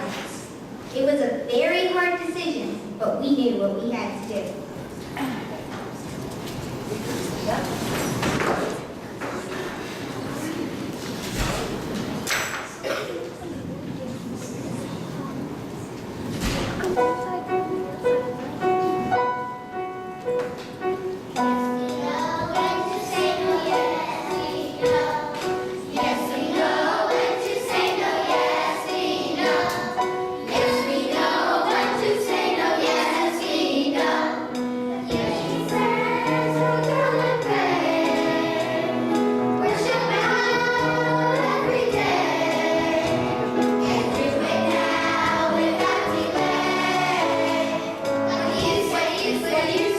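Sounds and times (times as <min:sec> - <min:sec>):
instrumental accompaniment: 0:16.8 - 0:49.9
group of voices singing: 0:22.1 - 0:34.4, 0:35.1 - 0:49.9.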